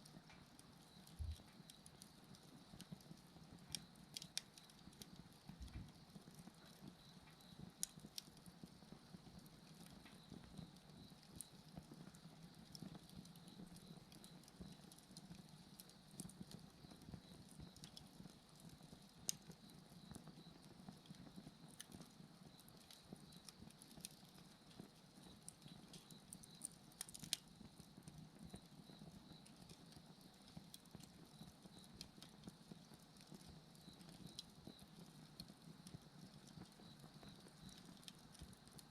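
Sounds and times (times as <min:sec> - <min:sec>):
bonfire crackling: 0:00.0 - 0:38.9
insects chirping: 0:36.7 - 0:38.0.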